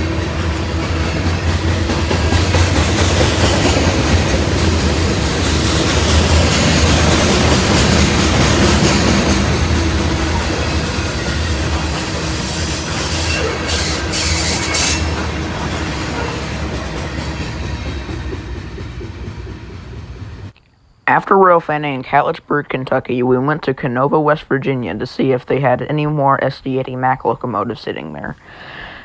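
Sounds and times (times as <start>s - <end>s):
train wheels rushing over track: 0.0s - 20.5s.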